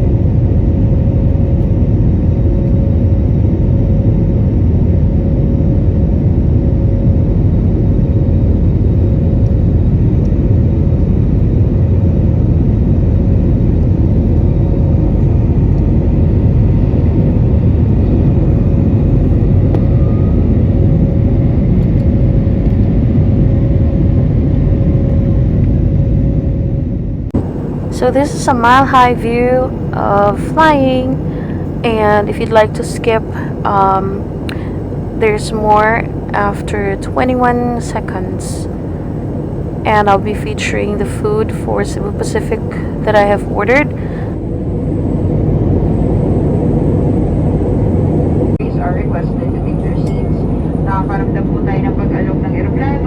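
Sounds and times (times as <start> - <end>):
constant cabin hum: 0.0 - 53.0
jet engines rumbling: 0.0 - 53.0
rushing air: 27.3 - 28.0, 31.1 - 31.9, 33.2 - 35.2, 38.6 - 39.9, 43.8 - 48.5.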